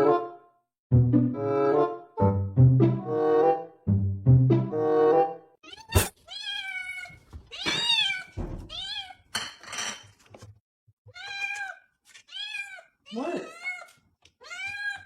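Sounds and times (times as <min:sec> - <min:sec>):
cat meowing: 0:05.6 - 0:09.2, 0:11.1 - 0:15.0.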